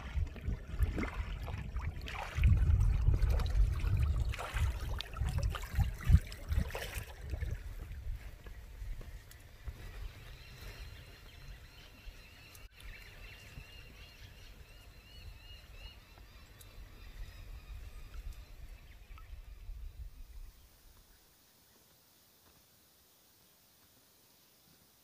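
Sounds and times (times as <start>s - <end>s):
bird chirping: 8.4s - 21.8s.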